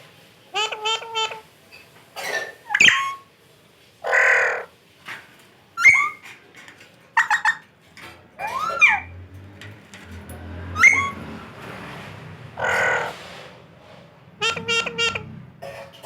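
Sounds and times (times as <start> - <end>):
parrot squawks and whistles: 2.7 - 3.3, 5.8 - 6.2, 8.4 - 9.1, 10.8 - 11.2.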